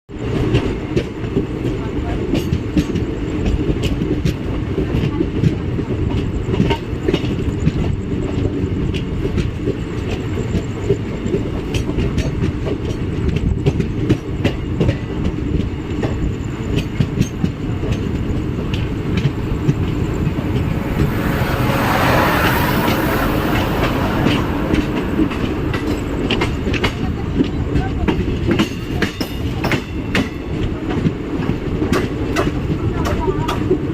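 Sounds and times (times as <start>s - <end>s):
train rumbling: 0.1s - 33.9s.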